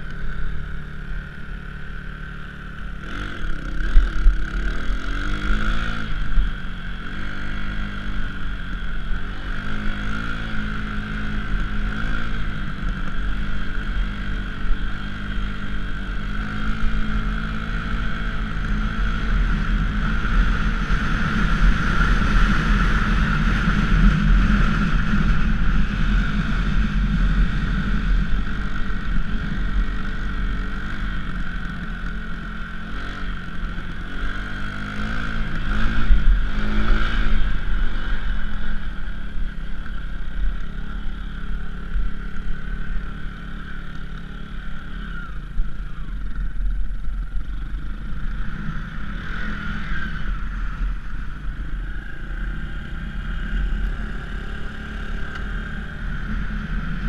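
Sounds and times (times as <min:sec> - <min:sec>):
dirt bike engine revving: 0:02.8 - 0:08.5, 0:09.1 - 0:39.5.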